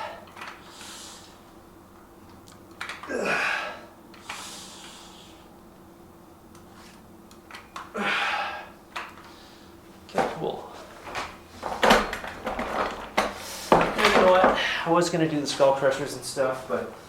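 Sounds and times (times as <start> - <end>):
long hissing exhale: 0.0 - 1.4, 3.2 - 5.5
man breathing hard: 0.0 - 1.4, 3.1 - 5.6, 7.9 - 9.8
man grunting: 3.1 - 3.9, 8.0 - 8.7.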